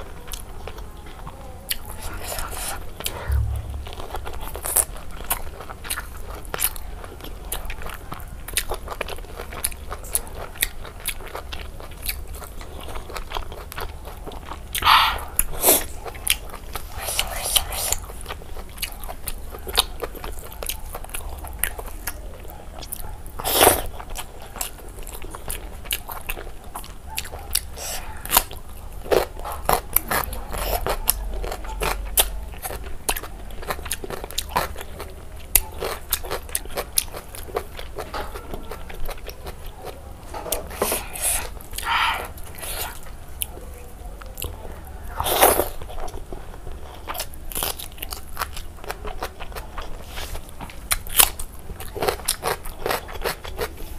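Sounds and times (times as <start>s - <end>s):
wet chewing: 0.0s - 53.9s.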